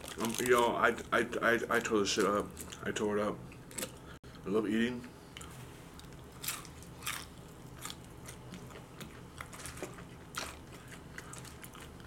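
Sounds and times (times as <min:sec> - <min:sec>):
crunching crispy food: 0:00.0 - 0:03.0, 0:06.0 - 0:12.0.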